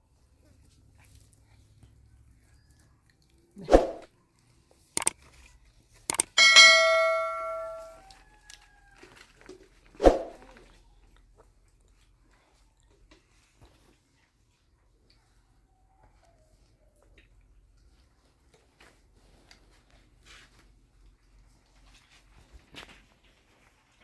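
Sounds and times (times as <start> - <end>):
sharp knocks and clatters: 6.1 - 8.0
struck metal ringing: 6.3 - 8.0.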